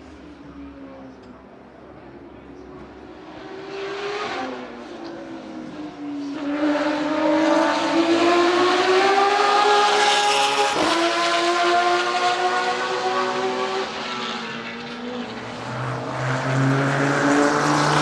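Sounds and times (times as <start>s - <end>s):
race car engine accelerating: 2.9s - 18.0s.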